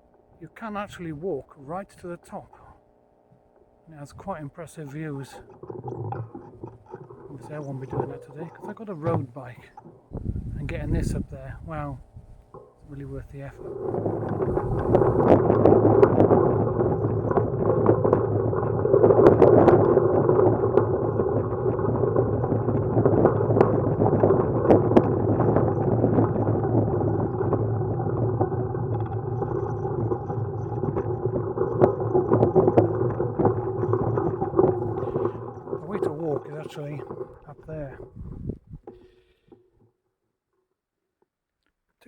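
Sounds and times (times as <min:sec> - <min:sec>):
wind rushing on microphone: 0:10.1 - 0:15.5, 0:37.7 - 0:38.9.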